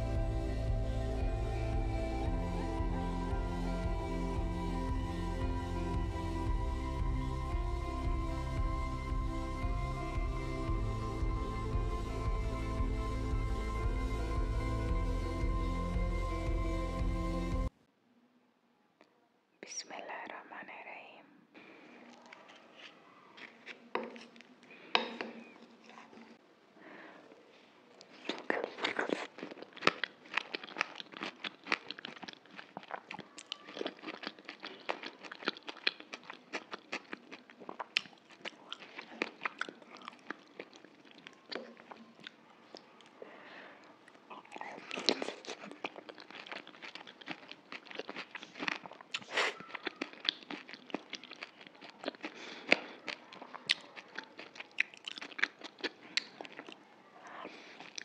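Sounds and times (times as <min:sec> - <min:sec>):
crunching crisp shells: 0:28.1 - 0:42.2.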